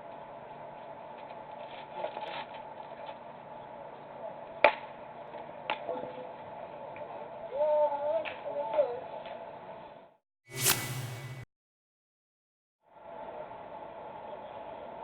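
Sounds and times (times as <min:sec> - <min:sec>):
field noise: 0:10.5 - 0:11.4.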